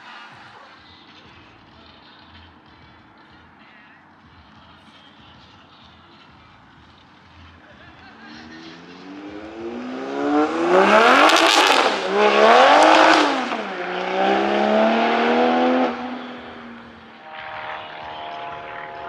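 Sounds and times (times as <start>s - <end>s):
car engine accelerating: 8.0s - 19.0s
exhaust crackles: 8.0s - 19.0s.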